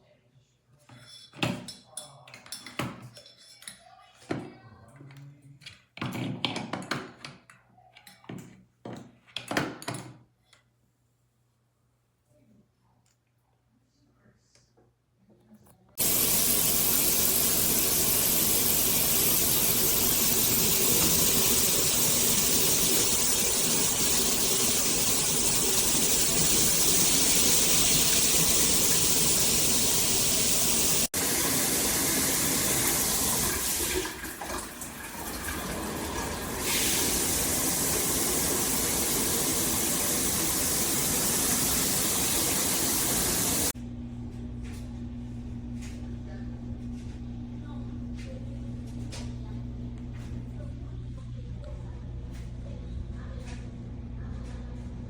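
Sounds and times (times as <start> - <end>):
shower water spraying: 16.0 - 43.8.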